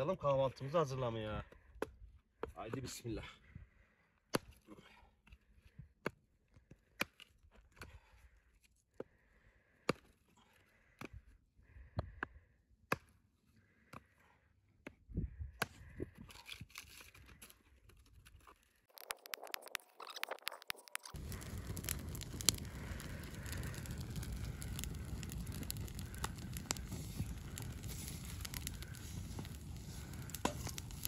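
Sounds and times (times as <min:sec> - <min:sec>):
crackle and rustle: 0:16.3 - 0:31.0
dry wood snapping: 0:16.3 - 0:31.0.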